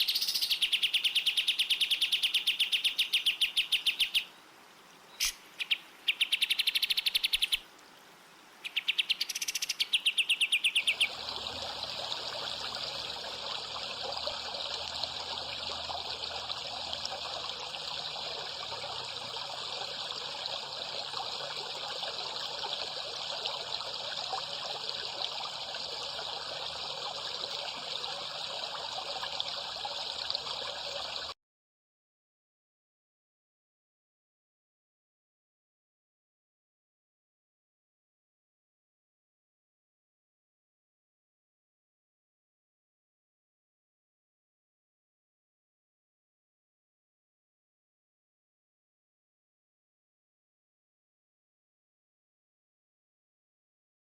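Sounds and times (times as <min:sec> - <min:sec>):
songbird trills: 0:00.0 - 0:07.6, 0:08.6 - 0:11.1.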